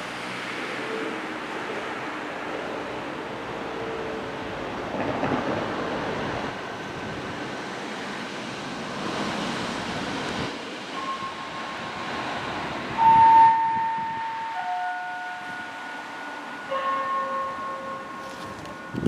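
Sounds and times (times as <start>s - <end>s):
vehicles passing: 0.0s - 19.0s
alarm gong tone: 11.0s - 19.0s.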